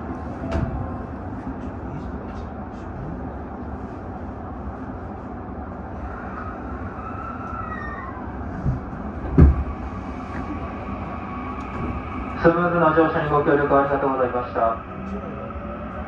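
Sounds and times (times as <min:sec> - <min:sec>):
commuter train running slowly: 0:00.0 - 0:16.0
low clunks: 0:08.6 - 0:09.7.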